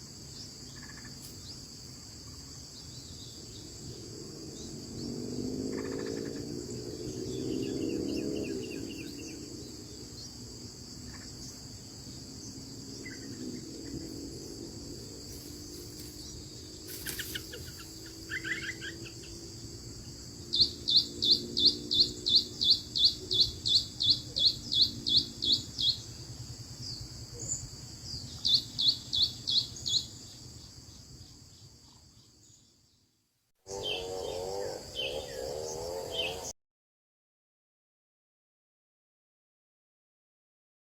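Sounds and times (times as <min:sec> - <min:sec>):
high insect drone: 0:00.0 - 0:36.6
birds chirping: 0:00.4 - 0:26.2, 0:33.7 - 0:36.5.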